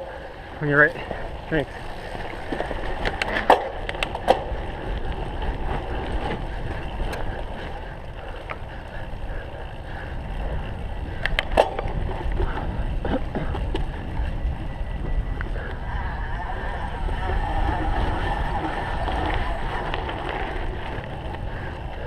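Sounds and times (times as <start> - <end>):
wind and rolling tyres: 0.0 - 22.0
bike knocks and rattles: 1.0 - 8.8, 10.3 - 15.8.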